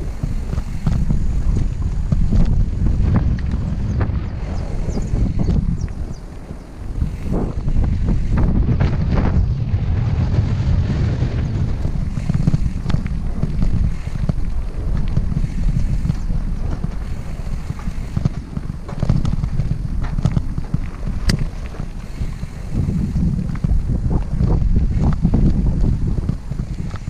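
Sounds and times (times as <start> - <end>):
mountain bike rumbling and rattling: 0.0 - 27.0
wind buffeting microphone: 0.0 - 27.0
bike clicks and knocks: 12.1 - 22.4.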